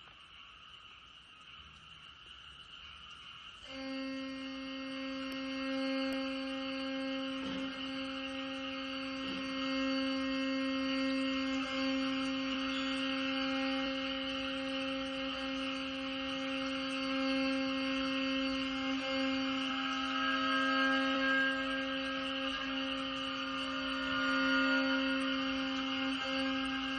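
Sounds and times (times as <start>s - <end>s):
ensemble holding a long note: 3.6s - 26.9s.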